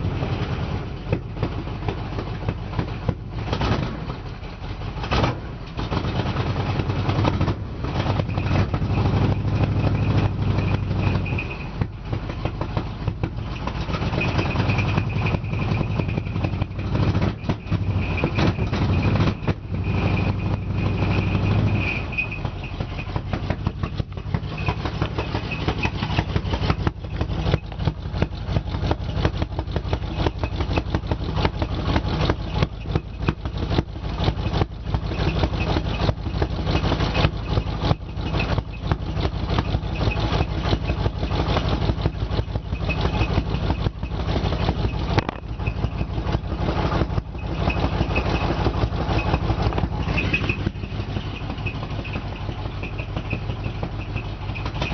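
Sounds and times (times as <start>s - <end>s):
engine idling with pulsing beat: 0.0s - 54.9s.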